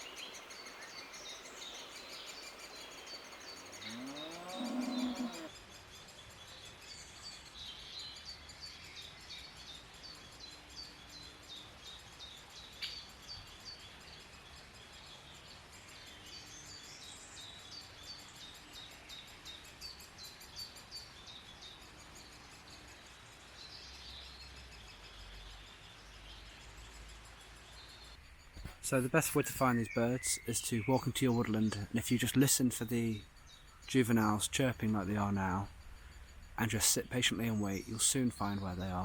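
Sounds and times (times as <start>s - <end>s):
woodpecker nestlings chirping: 0.0s - 5.4s.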